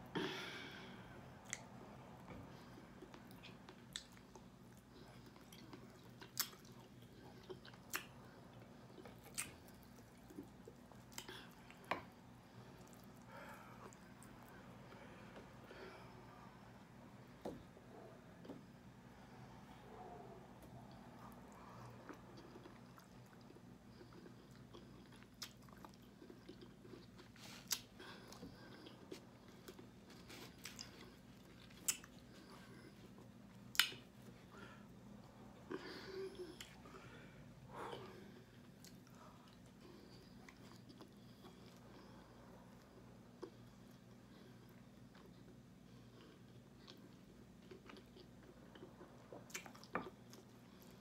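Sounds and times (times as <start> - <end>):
chewing and mouth smacks: 2.6 - 14.6, 20.6 - 34.4, 37.9 - 42.1, 42.7 - 51.0.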